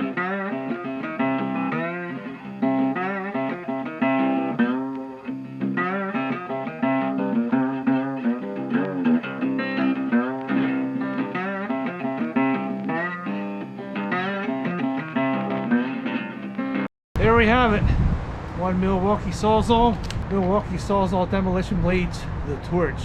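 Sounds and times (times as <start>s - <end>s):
guitar with bent notes: 0.0s - 23.0s
steady bass line: 17.2s - 23.0s.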